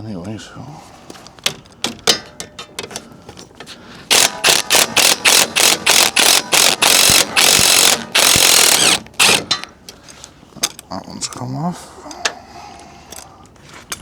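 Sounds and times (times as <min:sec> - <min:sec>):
hand ratchet clicking: 0:04.1 - 0:09.6
tool clicks: 0:04.1 - 0:09.7.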